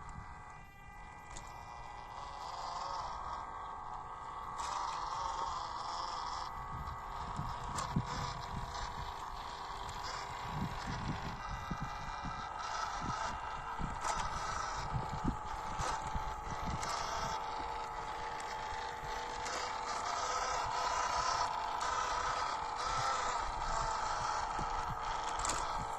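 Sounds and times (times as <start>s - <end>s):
electric motors whining: 0.0s - 25.9s
tyres scraping over rough ground: 7.5s - 25.9s.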